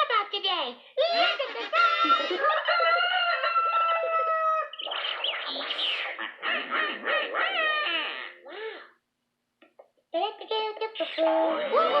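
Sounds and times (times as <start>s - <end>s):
rooster crowing: 1.9s - 4.7s.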